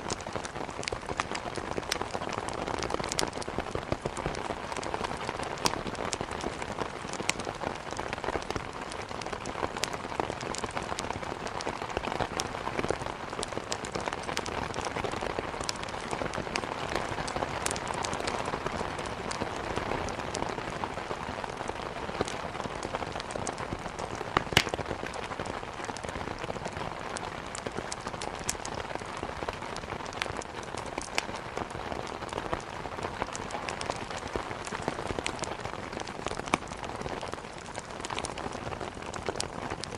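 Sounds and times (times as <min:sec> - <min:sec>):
steady rain falling: 0:00.0 - 0:39.9
wood crackling in fireplace: 0:00.0 - 0:39.9.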